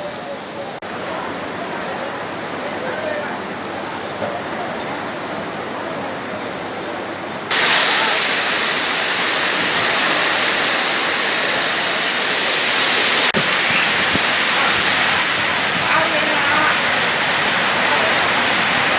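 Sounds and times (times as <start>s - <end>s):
heavy rain pouring: 7.5s - 18.9s.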